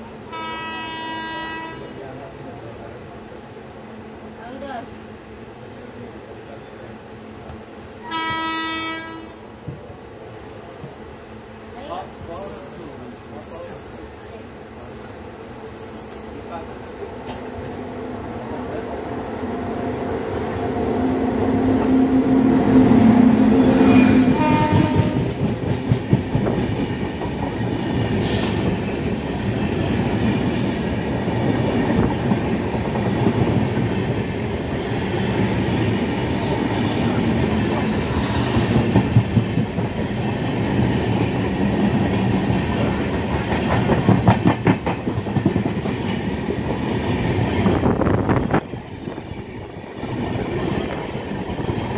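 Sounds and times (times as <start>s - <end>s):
low train horn: 0.3s - 2.0s, 8.0s - 9.5s, 21.8s - 25.4s
train wheels clattering over joints: 24.5s - 29.1s, 38.5s - 46.8s.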